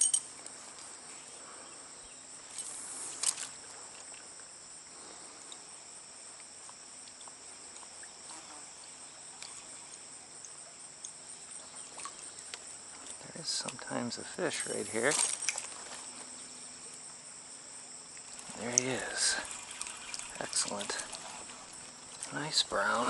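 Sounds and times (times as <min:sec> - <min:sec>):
insects chirping: 0:00.0 - 0:23.0
brief rustle or splash: 0:02.5 - 0:04.2, 0:11.7 - 0:12.3, 0:14.9 - 0:16.4.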